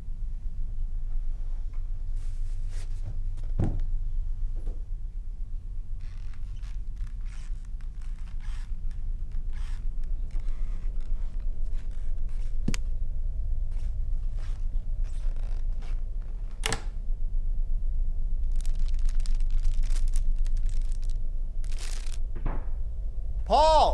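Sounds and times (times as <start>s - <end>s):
low hum: 0.0s - 23.9s
rustling and footsteps: 6.0s - 13.0s, 13.7s - 16.6s.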